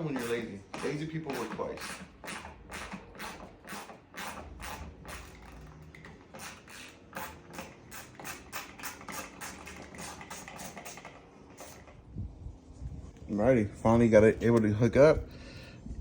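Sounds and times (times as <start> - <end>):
hand ratchet clicking: 0.0 - 11.9.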